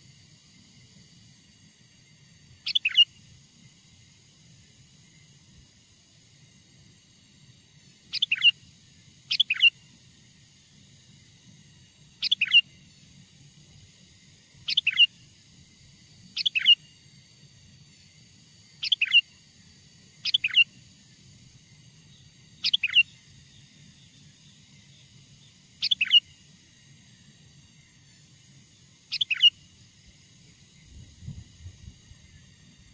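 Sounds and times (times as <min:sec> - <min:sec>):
faint low hum: 0:00.0 - 0:32.9
bulbul chirpy calls: 0:02.6 - 0:03.3, 0:08.0 - 0:09.9, 0:11.6 - 0:15.4, 0:16.0 - 0:30.8.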